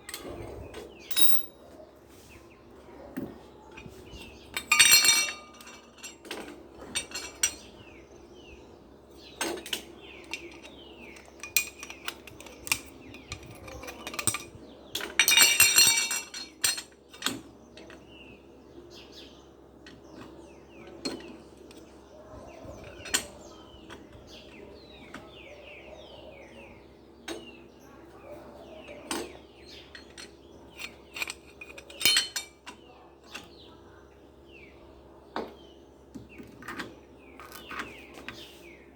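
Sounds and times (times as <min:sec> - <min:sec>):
metal parts and tools clinking: 0:01.1 - 0:01.6, 0:04.5 - 0:07.7, 0:09.4 - 0:18.0, 0:29.1 - 0:33.5
birds chirping: 0:17.6 - 0:38.9.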